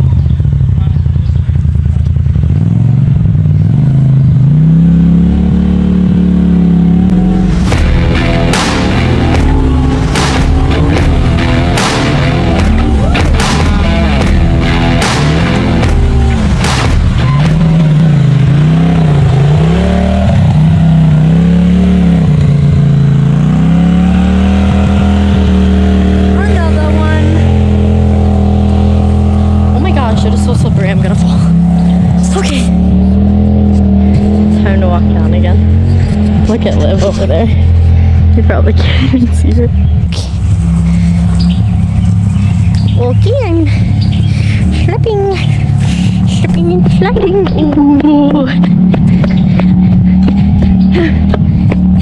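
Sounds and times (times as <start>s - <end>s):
utility vehicle engine revving: 0.0s - 52.0s.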